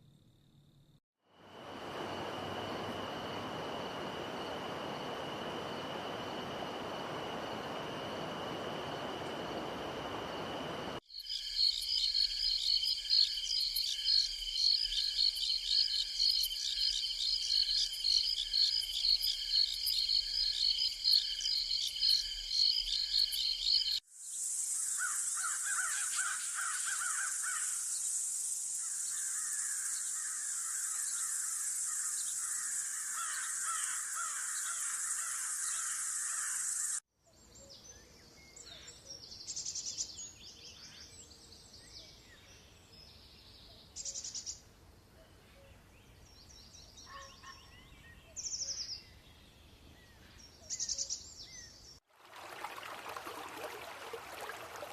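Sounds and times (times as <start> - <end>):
high insect buzz: 1.6 - 37.0
harsh crow-like bird calls: 25.0 - 27.8, 29.2 - 37.0.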